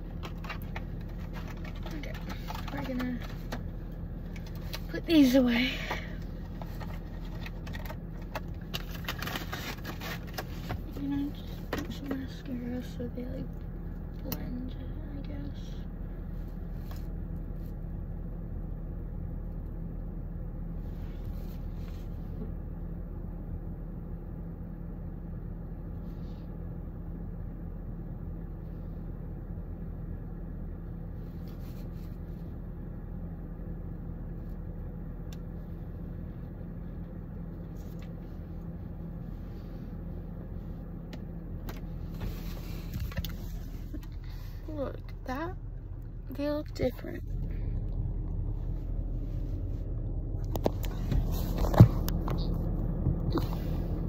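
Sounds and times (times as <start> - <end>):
rustling handling noise: 0.0 - 5.0, 6.2 - 12.4, 41.7 - 54.0
car engine idling: 0.0 - 54.0.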